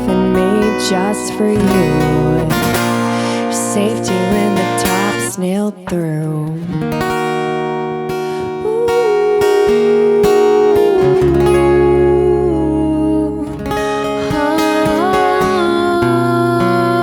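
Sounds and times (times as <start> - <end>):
strummed acoustic guitar: 0.0 - 17.0
bending lead melody: 9.0 - 17.0.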